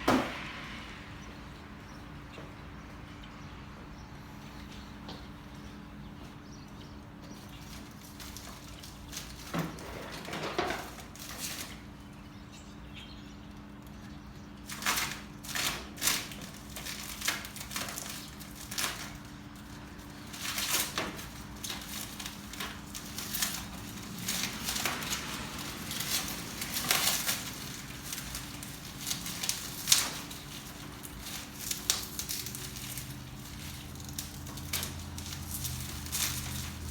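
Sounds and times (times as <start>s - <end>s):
packaging rustling and scraping: 7.3s - 12.2s, 14.6s - 36.9s.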